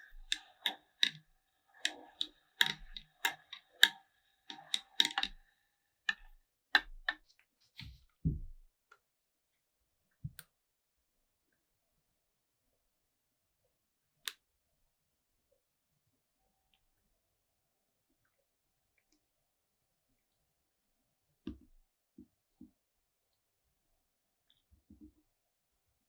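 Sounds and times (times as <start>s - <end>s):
small hard parts clicking: 0.0s - 7.2s.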